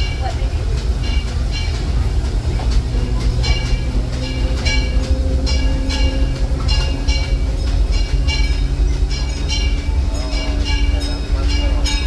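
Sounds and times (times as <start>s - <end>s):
wheels rumbling on track: 0.0s - 12.0s.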